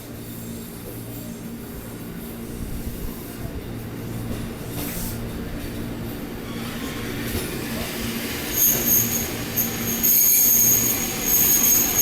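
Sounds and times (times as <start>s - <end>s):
train rumbling along track: 0.0s - 12.0s
train wheels squealing: 6.4s - 12.0s.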